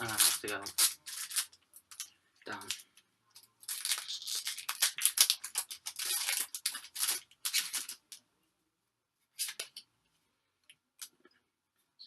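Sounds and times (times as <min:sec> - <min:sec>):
foil wrapper tearing and crinkling: 0:00.0 - 0:02.8, 0:03.6 - 0:08.2.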